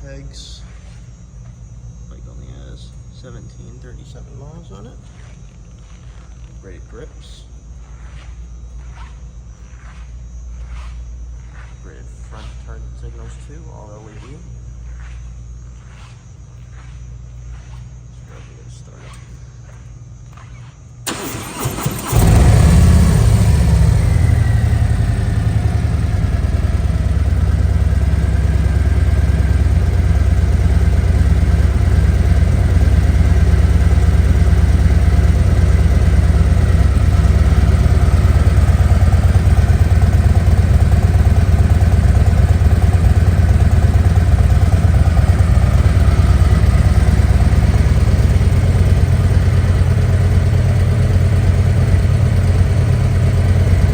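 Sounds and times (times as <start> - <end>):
motorcycle engine idling: 21.0 - 53.9
motorcycle starter cranking: 21.0 - 53.9.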